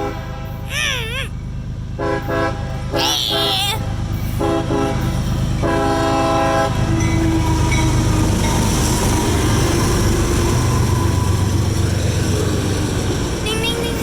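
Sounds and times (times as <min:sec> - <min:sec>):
passing train rumble: 0:01.4 - 0:14.0
locomotive horn chord: 0:04.4 - 0:06.8.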